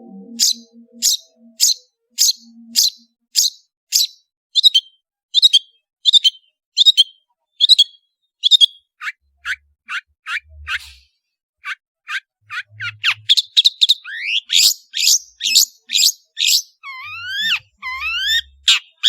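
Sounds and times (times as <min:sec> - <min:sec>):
bird calling high notes: 0:00.0 - 0:03.1, 0:11.6 - 0:18.8
faint background music: 0:00.0 - 0:03.1.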